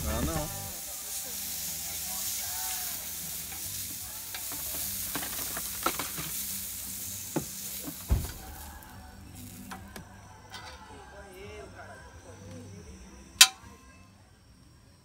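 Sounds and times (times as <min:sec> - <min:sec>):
meat and onions sizzling: 0:00.0 - 0:10.2.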